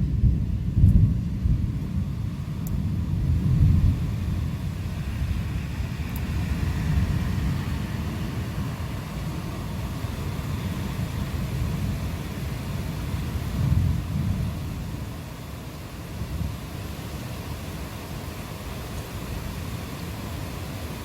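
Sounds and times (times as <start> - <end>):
thunder rumbling: 0.0 - 15.3
rain hissing: 0.0 - 21.0.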